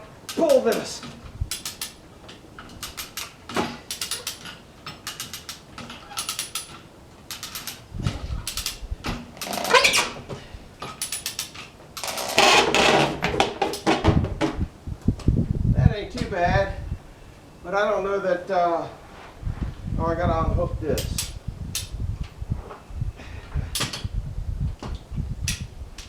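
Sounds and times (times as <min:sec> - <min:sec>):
winch creaking: 0:00.0 - 0:14.6
winch ratchet clicking: 0:00.2 - 0:13.1.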